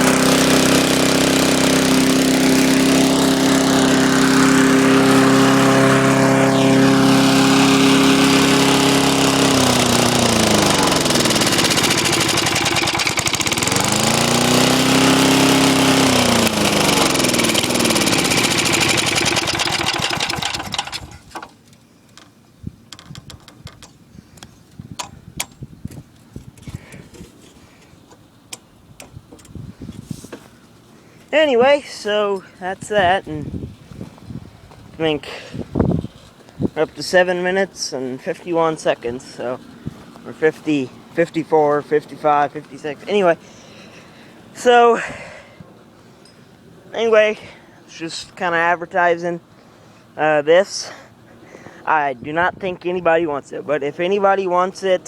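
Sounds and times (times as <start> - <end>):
lawn tractor engine running: 0.0 - 22.3.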